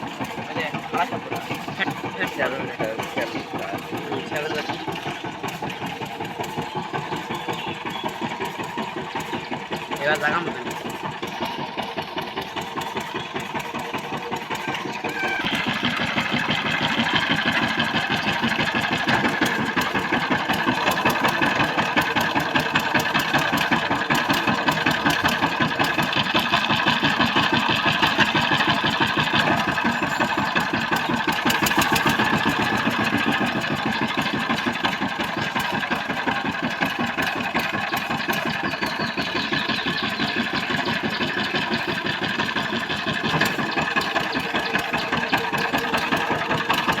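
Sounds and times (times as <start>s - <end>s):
diesel engine chugging: 0.0s - 47.0s.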